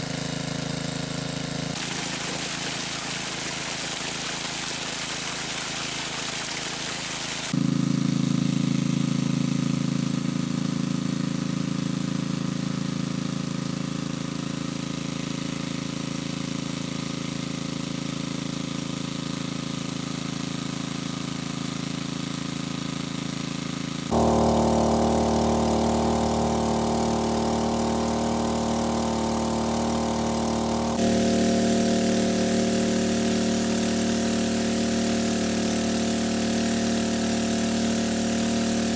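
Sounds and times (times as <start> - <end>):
small engine droning: 0.0 - 13.2, 24.0 - 38.9.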